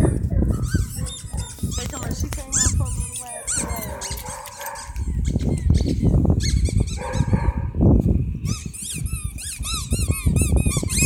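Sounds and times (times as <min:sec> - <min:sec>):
dog whining: 0:02.6 - 0:07.4.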